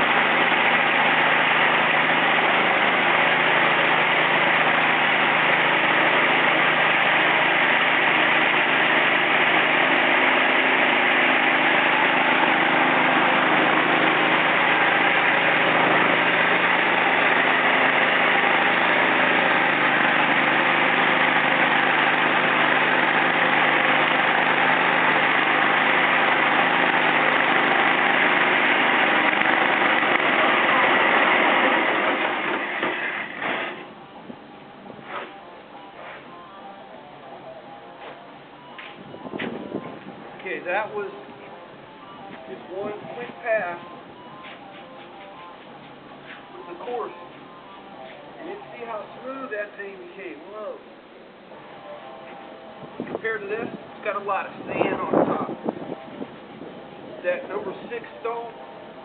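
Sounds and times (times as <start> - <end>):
concrete floor grinder running: 0.0 - 34.0.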